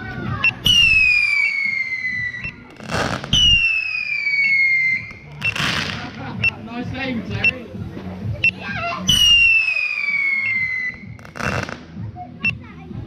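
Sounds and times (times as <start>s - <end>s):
firework whistles: 0.4s - 6.0s, 9.1s - 11.8s.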